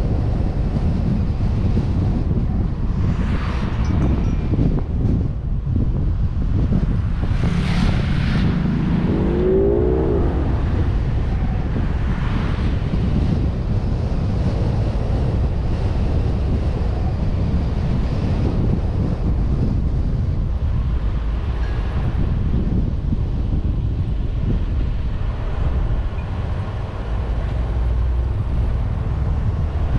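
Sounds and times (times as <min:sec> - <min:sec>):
engine and tyre rumble: 0:00.0 - 0:29.9
wind rushing over microphone: 0:00.0 - 0:29.9
short rising tone: 0:07.7 - 0:11.0.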